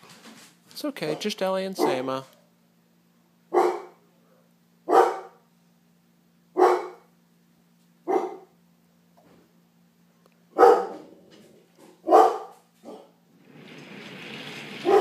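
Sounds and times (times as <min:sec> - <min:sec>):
faint electrical hum: 0:00.0 - 0:15.0
dog barking: 0:01.1 - 0:02.2, 0:03.5 - 0:04.0, 0:04.9 - 0:05.4, 0:06.6 - 0:07.1, 0:08.0 - 0:08.6, 0:10.6 - 0:11.1, 0:11.8 - 0:13.2.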